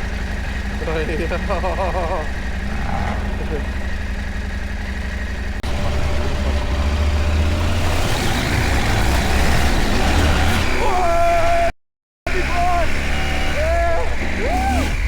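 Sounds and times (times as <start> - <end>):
motorcycle engine running: 0.0 - 10.6
rushing noise: 2.5 - 6.5.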